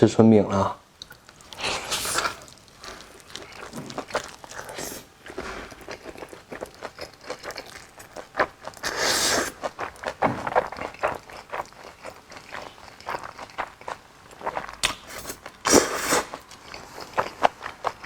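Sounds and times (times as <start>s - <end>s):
wet eating clicks and crackles: 1.0s - 8.8s
food rustle: 1.1s - 18.0s.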